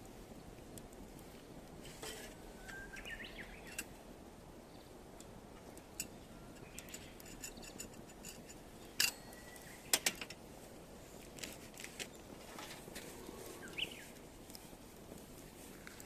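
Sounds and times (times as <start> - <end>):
firewood crackling: 0.0 - 16.0
sharp pops of burning wood: 0.0 - 16.0.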